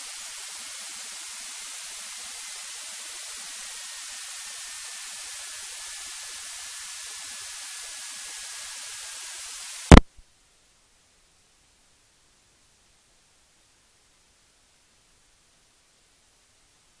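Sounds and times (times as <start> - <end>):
intercom electronic hiss: 0.0 - 10.0
loud click: 9.9 - 10.2.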